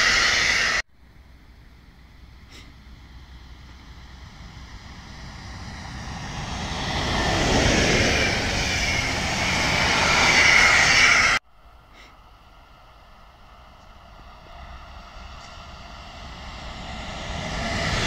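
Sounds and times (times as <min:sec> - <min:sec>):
train wheels rolling on rails: 0:02.9 - 0:11.4.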